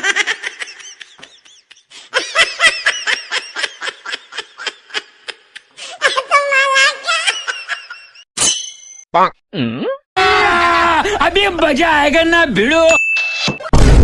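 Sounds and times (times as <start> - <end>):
high-pitched comic laughing: 0.0 - 8.2.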